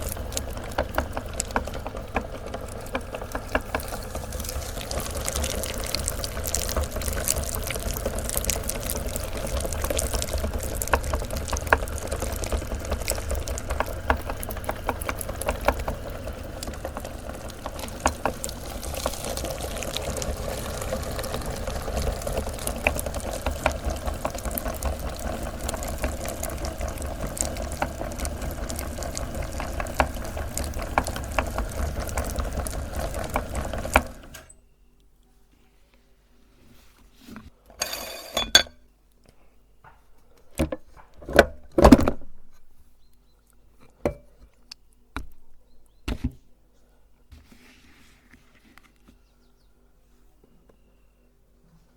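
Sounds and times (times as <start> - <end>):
candy cracking: 0.0 - 34.0
meat grinder motor hum: 0.0 - 34.5.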